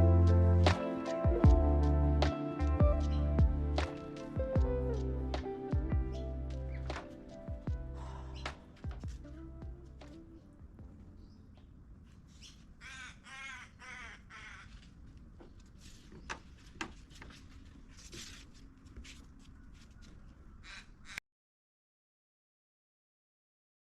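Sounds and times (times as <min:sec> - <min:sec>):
crow cawing: 0:12.8 - 0:14.8, 0:20.6 - 0:21.2.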